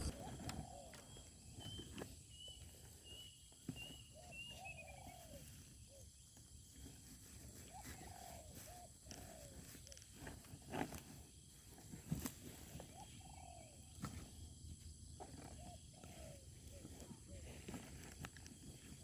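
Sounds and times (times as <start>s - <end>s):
doves cooing: 0.0s - 1.8s, 4.2s - 6.7s, 7.5s - 10.6s, 12.6s - 19.0s.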